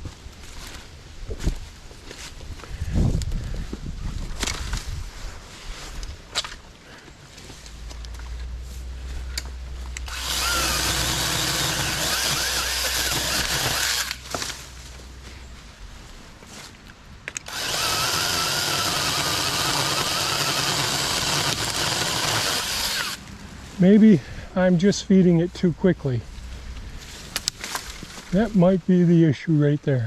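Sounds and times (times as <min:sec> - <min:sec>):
chainsaw cutting wood: 0:10.0 - 0:14.6, 0:17.3 - 0:23.3.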